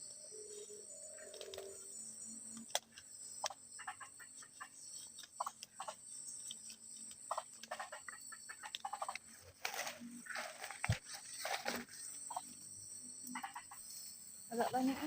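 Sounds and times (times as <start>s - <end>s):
insects droning: 0.0s - 15.0s
handling crackles and rustles: 9.1s - 12.3s.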